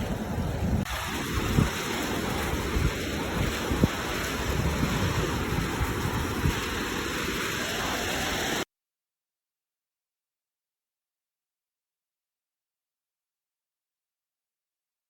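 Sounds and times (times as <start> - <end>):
wind buffeting the microphone: 0.0 - 8.2
sea surf washing: 0.0 - 8.6.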